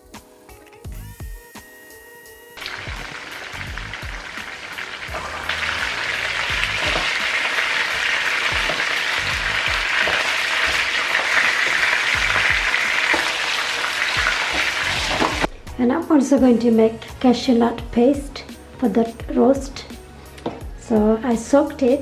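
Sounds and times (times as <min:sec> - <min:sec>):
chicken sizzling in hot oil: 0:00.0 - 0:15.5.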